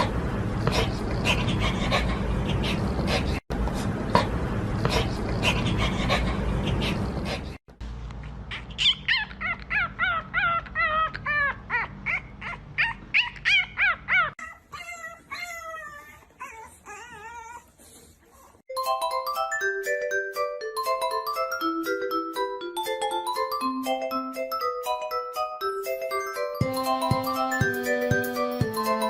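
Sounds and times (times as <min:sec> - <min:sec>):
dog whining and yipping: 0:08.5 - 0:18.6
glockenspiel-like music: 0:18.7 - 0:29.0.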